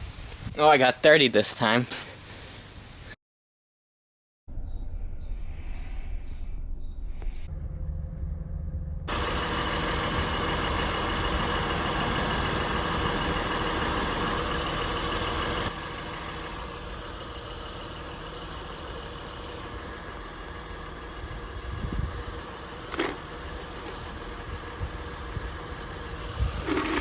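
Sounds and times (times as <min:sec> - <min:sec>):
low hum: 0:04.5 - 0:27.0
tire inflator buzzing and ticking: 0:09.1 - 0:27.0.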